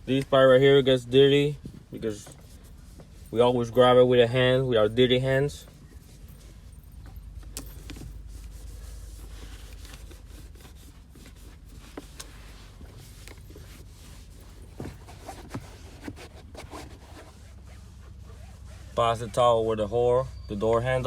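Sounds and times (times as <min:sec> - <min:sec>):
steady low hum: 0:00.0 - 0:21.0
towel rubbing car door panel: 0:07.7 - 0:21.0.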